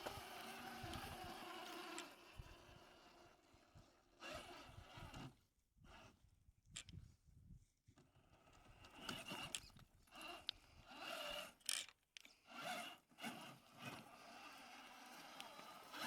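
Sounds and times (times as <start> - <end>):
electric motor whining: 0.0 - 3.4, 12.5 - 16.0.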